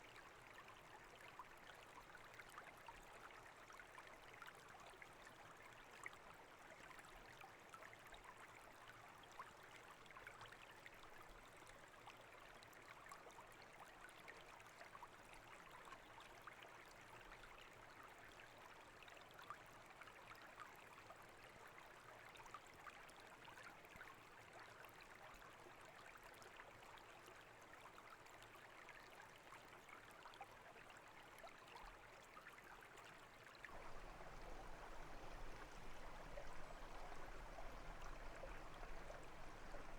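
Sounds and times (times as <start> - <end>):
brook babbling and trickling: 32.0 - 39.9.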